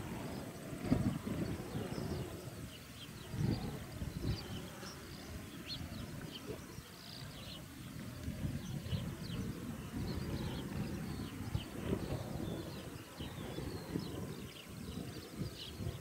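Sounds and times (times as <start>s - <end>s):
small birds chirping: 0.0s - 16.0s
wind buffeting microphone: 0.0s - 16.0s.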